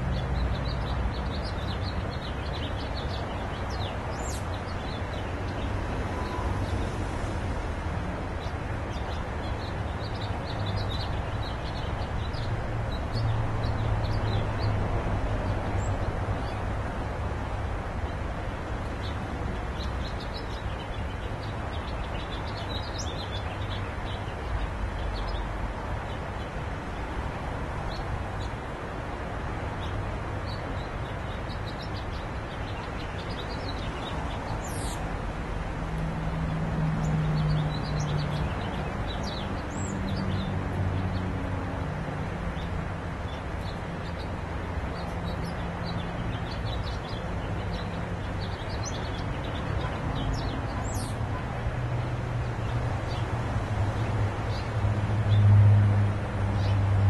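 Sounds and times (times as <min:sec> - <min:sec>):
small birds chirping: 0:00.0 - 0:07.0, 0:18.8 - 0:26.6, 0:29.6 - 0:35.2, 0:37.0 - 0:41.8, 0:42.5 - 0:51.6, 0:56.6 - 0:56.8.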